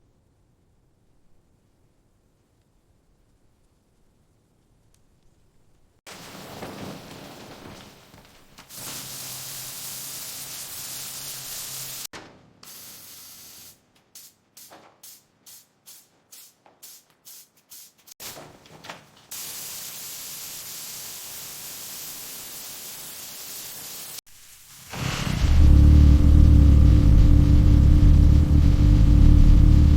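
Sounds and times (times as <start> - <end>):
pressurised spray hissing: 8.7 - 12.1, 12.7 - 18.4, 19.3 - 26.0.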